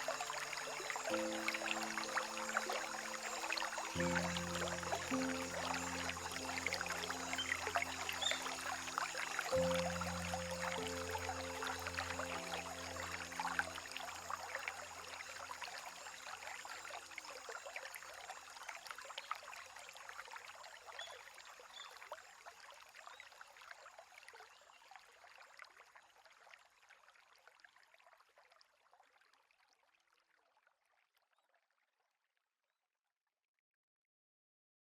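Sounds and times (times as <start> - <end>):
soft background music: 0.0 - 16.8.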